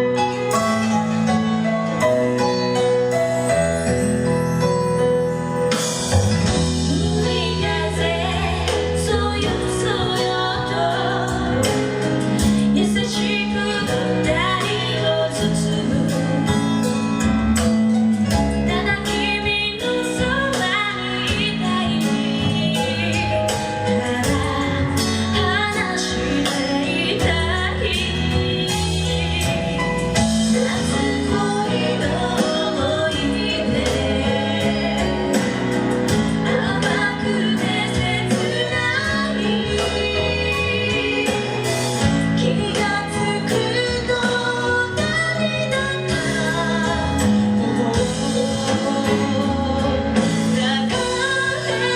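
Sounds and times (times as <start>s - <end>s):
live pop band: 0.0s - 51.9s
woman singing: 6.4s - 17.2s, 18.2s - 51.9s
steady drum beat: 21.3s - 45.2s.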